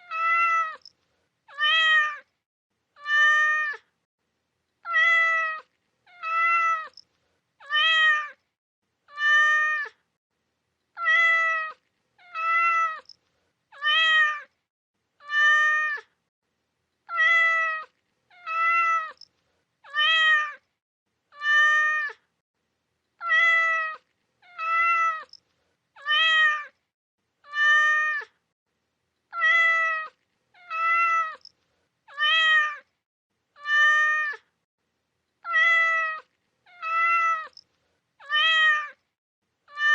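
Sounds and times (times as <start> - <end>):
cat meowing: 0.0 - 0.9, 1.5 - 2.3, 3.0 - 3.9, 4.8 - 7.0, 7.6 - 8.4, 9.1 - 10.0, 10.9 - 14.5, 15.2 - 16.1, 17.1 - 20.6, 21.3 - 22.3, 23.2 - 25.4, 26.0 - 26.8, 27.4 - 28.4, 29.3 - 31.5, 32.1 - 32.9, 33.6 - 34.5, 35.4 - 37.6, 38.2 - 39.0, 39.7 - 39.9.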